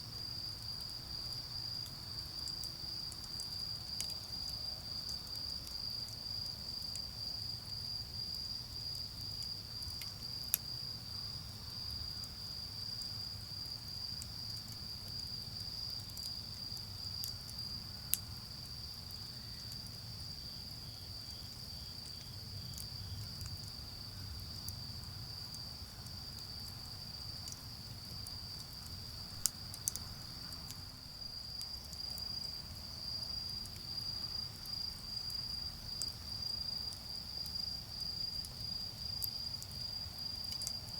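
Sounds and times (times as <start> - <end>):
crickets trilling: 0.0 - 40.9
charcoal fire pops: 25.5 - 32.8.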